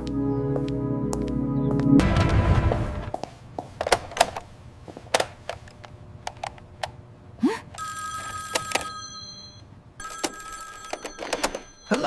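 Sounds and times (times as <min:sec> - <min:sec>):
telephone ringing: 0:07.8 - 0:12.0.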